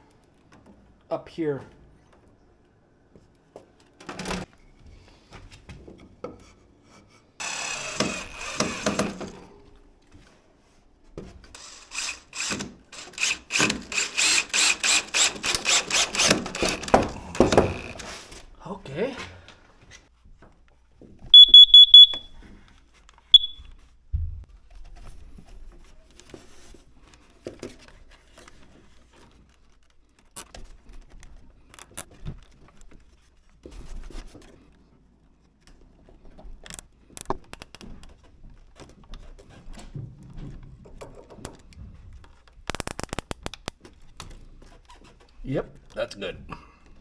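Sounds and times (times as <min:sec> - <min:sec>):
cable tie ratcheting clicks: 0:11.6 - 0:18.1, 0:42.7 - 0:43.8
high-pitched alarm beeps: 0:21.4 - 0:22.3, 0:23.4 - 0:23.7.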